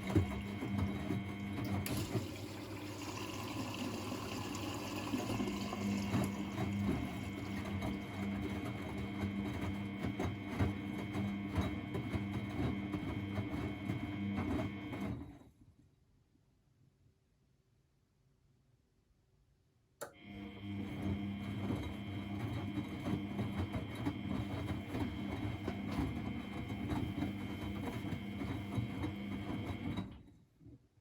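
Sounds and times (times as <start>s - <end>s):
washing machine running: 0.0s - 15.4s, 20.2s - 30.4s
water noise: 1.9s - 8.0s.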